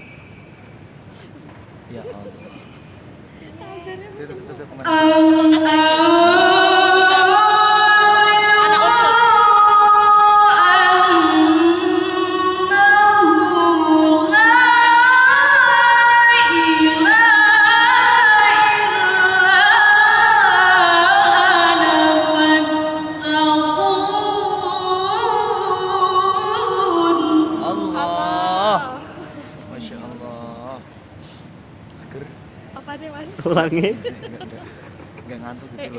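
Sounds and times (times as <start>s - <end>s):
woman reciting melodically: 3.4s - 29.6s, 32.8s - 33.4s.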